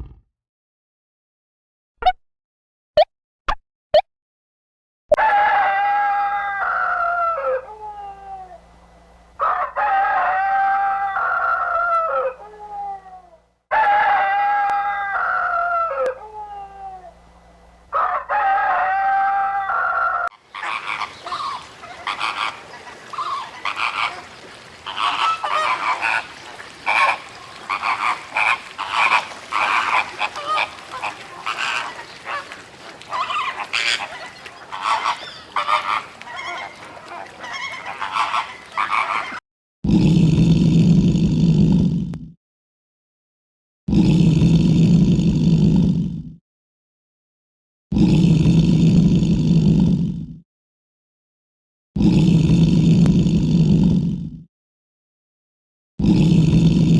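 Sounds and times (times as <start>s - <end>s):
birds honking: 20.4s - 39.4s
long low calls: 20.4s - 39.4s.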